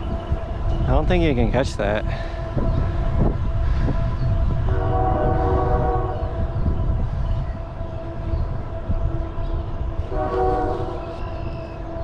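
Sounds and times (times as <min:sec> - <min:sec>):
wind rumble on microphone: 0:00.0 - 0:12.0
horn chord: 0:04.6 - 0:06.4, 0:09.0 - 0:11.0.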